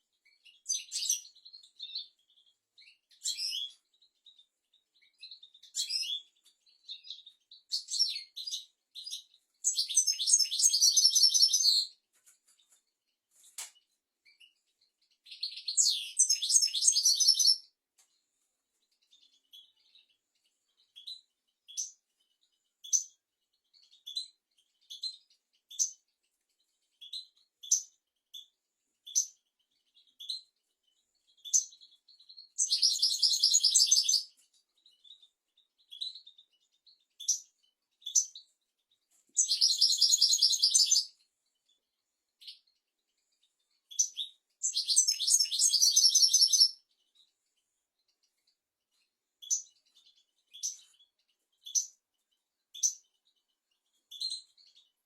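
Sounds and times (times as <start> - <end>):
goldfinch twittering song: 0.0 - 12.0, 13.6 - 17.7, 18.8 - 47.3, 48.0 - 52.0, 52.7 - 54.9
short bird chirps: 15.2 - 17.7, 26.9 - 38.5, 39.2 - 41.3, 42.4 - 47.3, 52.7 - 54.9.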